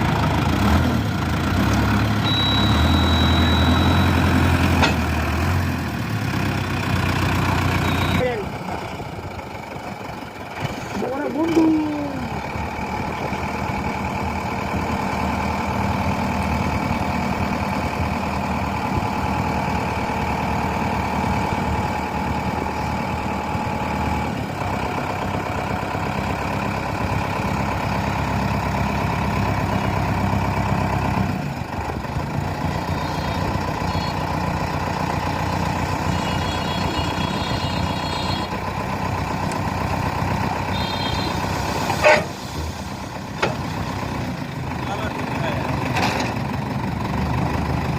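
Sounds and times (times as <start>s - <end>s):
tractor engine running: 0.0s - 47.9s
short high beeps: 2.2s - 4.2s, 7.8s - 8.2s.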